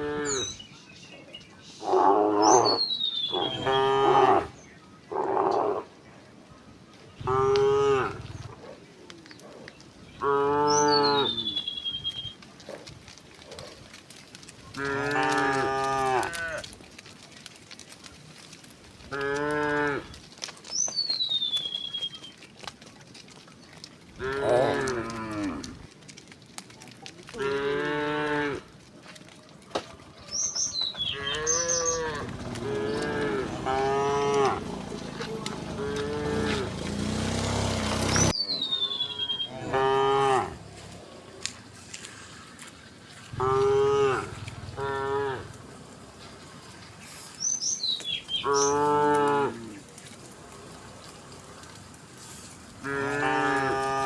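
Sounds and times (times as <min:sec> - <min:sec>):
cows mooing: 0:00.0 - 0:00.6, 0:01.8 - 0:05.9, 0:07.2 - 0:08.6, 0:10.2 - 0:11.6, 0:14.7 - 0:16.8, 0:19.1 - 0:20.2, 0:24.2 - 0:26.0, 0:27.3 - 0:28.8, 0:31.0 - 0:41.5, 0:43.2 - 0:46.8, 0:48.2 - 0:54.0.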